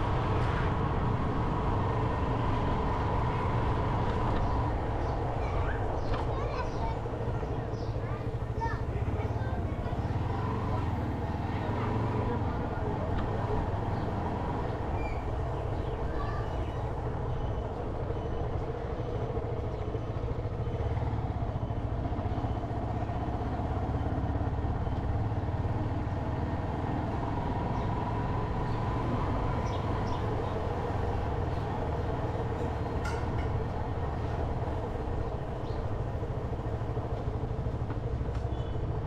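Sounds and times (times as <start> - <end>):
motorcycle engine: 8.2 - 16.0.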